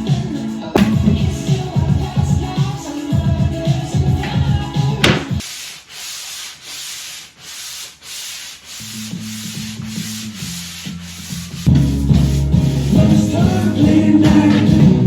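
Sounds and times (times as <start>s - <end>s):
music: 0.0s - 5.4s, 8.8s - 15.0s
hand sanding wood: 0.0s - 14.6s.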